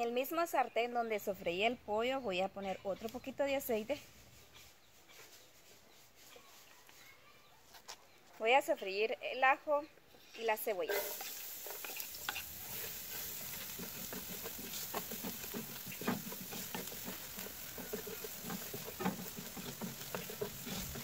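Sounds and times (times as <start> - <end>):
onion and garlic sizzling in oil: 0.0 - 5.1, 10.2 - 21.0
wooden spatula scraping a pan: 2.9 - 7.9, 10.2 - 21.0.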